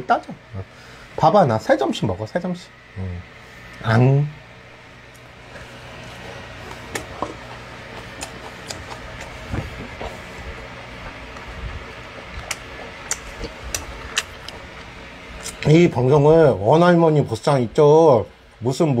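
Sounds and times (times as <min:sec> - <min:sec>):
low background hum: 0:00.0 - 0:19.0
man chewing food: 0:05.1 - 0:15.6
mouth smacks and clicks: 0:08.0 - 0:09.9, 0:12.3 - 0:15.6.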